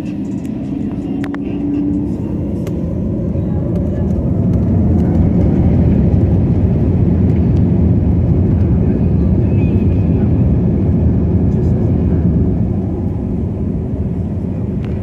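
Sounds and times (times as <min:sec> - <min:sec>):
steady tone: 0:00.0 - 0:04.4
jet engines rumbling: 0:00.0 - 0:15.0.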